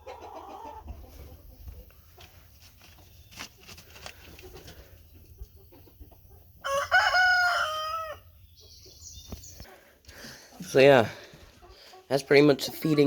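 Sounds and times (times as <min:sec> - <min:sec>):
chickens clicking and scratching: 0:00.1 - 0:06.5
rooster crowing: 0:06.6 - 0:08.2.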